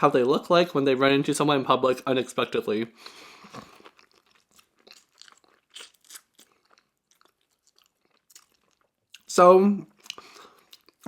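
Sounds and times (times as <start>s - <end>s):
person chewing food: 3.0s - 9.3s, 10.0s - 11.0s.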